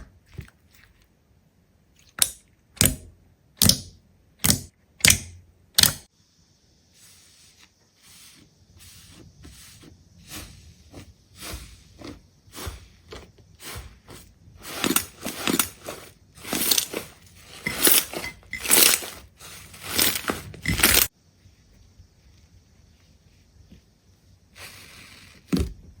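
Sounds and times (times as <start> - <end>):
crunching strokes: 9.0 - 21.1.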